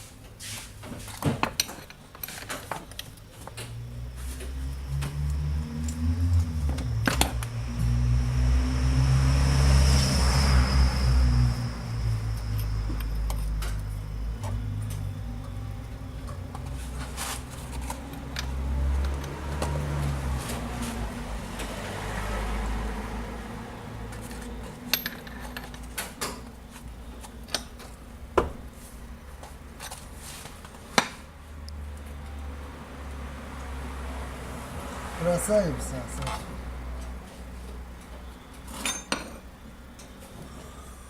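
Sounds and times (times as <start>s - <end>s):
metal tools clinking on engine parts: 1.4s - 3.3s, 24.2s - 26.5s, 38.7s - 40.2s.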